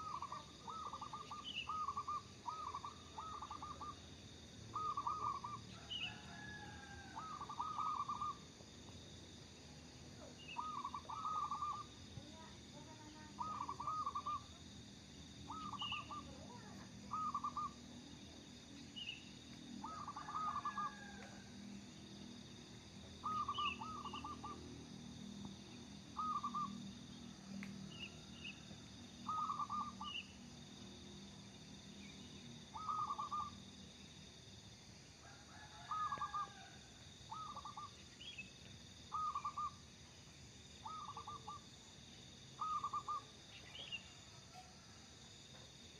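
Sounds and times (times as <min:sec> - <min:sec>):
dove cooing: 0:00.0 - 0:04.0, 0:04.7 - 0:08.4, 0:10.2 - 0:11.9, 0:13.2 - 0:14.5, 0:15.5 - 0:17.8, 0:19.8 - 0:21.4, 0:23.2 - 0:24.6, 0:26.2 - 0:26.8, 0:29.2 - 0:30.2, 0:32.7 - 0:33.5, 0:35.6 - 0:36.7, 0:37.3 - 0:37.9, 0:39.1 - 0:39.8, 0:40.8 - 0:41.6, 0:42.6 - 0:43.3
faint high chirps: 0:15.4 - 0:21.4.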